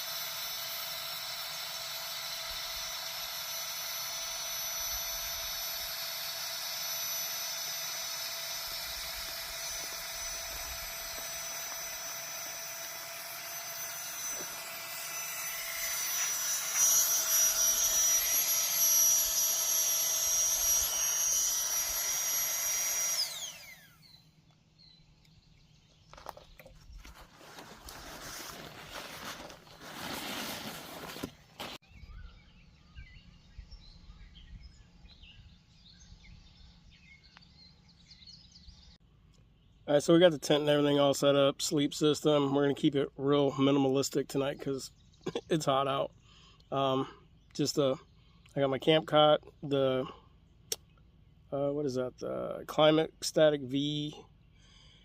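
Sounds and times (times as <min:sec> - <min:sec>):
small air pump running: 0:00.0 - 0:24.4, 0:26.1 - 0:31.8.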